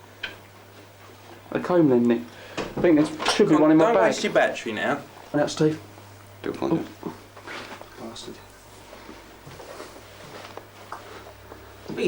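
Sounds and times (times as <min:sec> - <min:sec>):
steady low hum: 0:00.0 - 0:12.0
faint knocks and rustles: 0:07.3 - 0:12.0.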